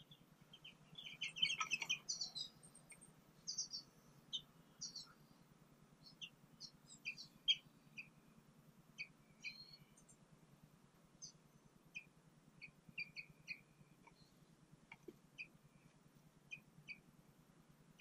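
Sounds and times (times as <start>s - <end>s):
small songbirds chirping: 0.0s - 18.0s.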